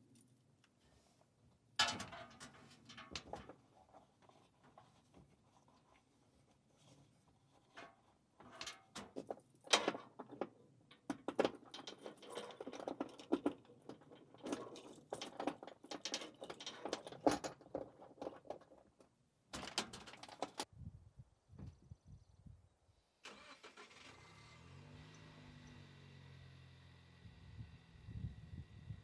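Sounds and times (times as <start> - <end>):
gear clattering and jangling: 7.8 - 19.0, 19.6 - 20.7.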